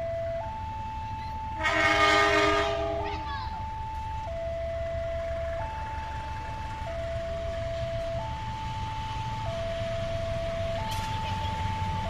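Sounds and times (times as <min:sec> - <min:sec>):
level crossing alarm tones: 0:00.0 - 0:06.0
road traffic rumble: 0:00.0 - 0:12.0.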